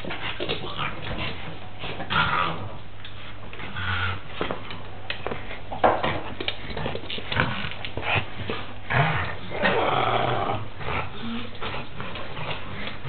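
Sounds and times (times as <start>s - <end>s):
dog growling: 0.6s - 2.8s, 7.2s - 13.0s.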